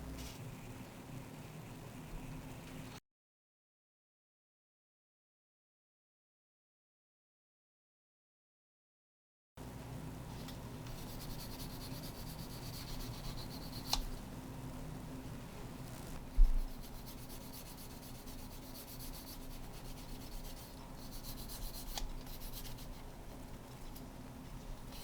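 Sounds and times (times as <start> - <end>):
steady low hum: 0.0 - 3.0, 9.6 - 25.0.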